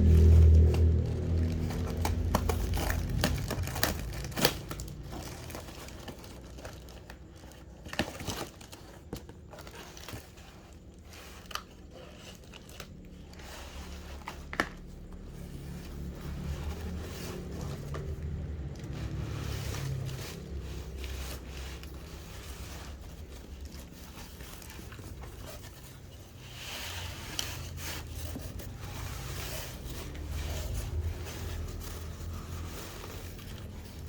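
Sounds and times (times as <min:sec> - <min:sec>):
low rumble: 0:00.0 - 0:06.1.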